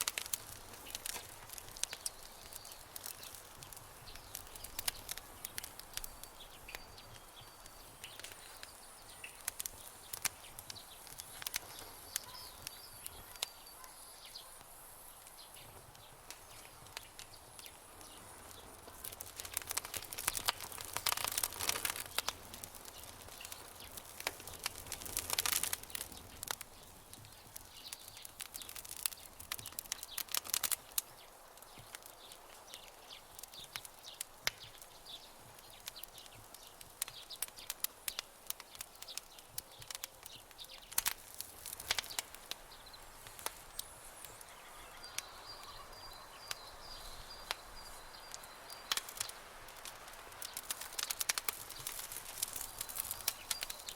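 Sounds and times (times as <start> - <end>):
campfire crackling and popping: 0.0 - 53.9
soft steady hiss: 0.0 - 53.9.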